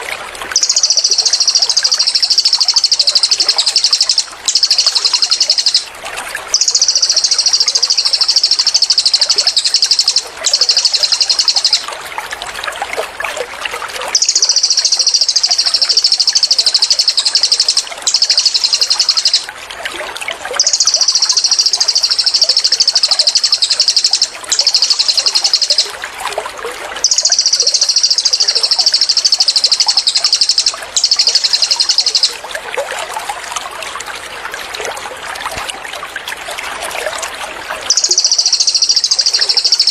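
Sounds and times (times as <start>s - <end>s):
babbling water: 0.0s - 39.9s
bird singing buzzy trills: 0.6s - 5.9s, 6.5s - 11.9s, 14.2s - 19.5s, 20.6s - 26.0s, 27.0s - 32.4s, 37.9s - 39.9s.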